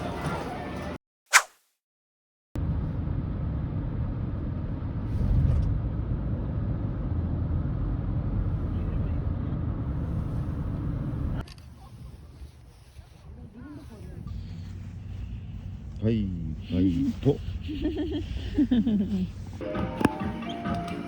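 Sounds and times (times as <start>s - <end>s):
car road rumble: 2.6s - 12.2s.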